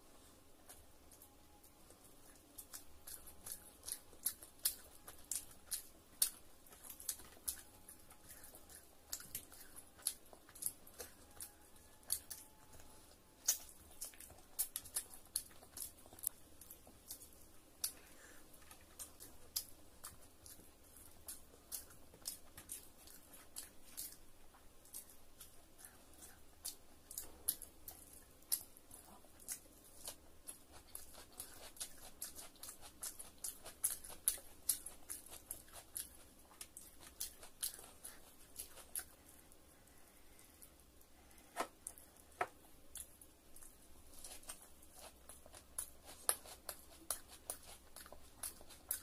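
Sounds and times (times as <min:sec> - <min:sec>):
person chewing with mouth smacks: 0:00.6 - 0:49.0.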